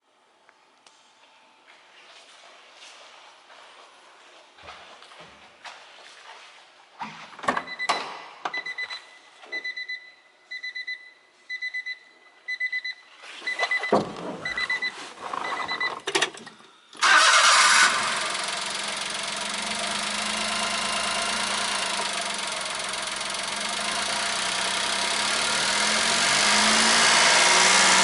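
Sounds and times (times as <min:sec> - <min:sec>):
car warning chime beeping: 0:09.6 - 0:13.0, 0:18.9 - 0:26.8
car engine cranking and starting: 0:15.7 - 0:28.0.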